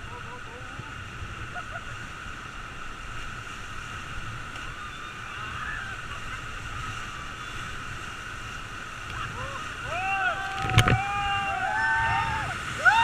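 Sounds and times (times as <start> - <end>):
river water rushing: 0.0 - 13.0
wind rumble on microphone: 2.7 - 13.0.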